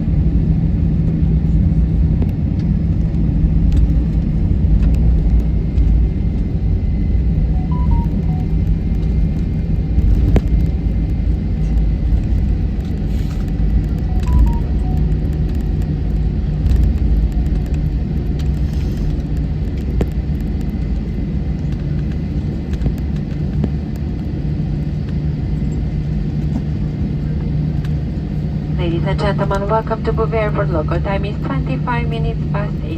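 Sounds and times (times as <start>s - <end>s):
airliner cabin rumble: 0.0s - 32.9s
faint tone: 7.6s - 8.7s, 14.0s - 15.2s.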